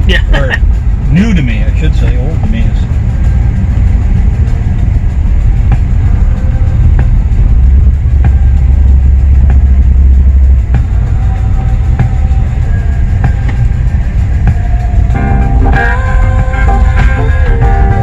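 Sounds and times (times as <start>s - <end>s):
car engine rumbling: 0.0s - 18.0s
music from car stereo: 0.0s - 18.0s.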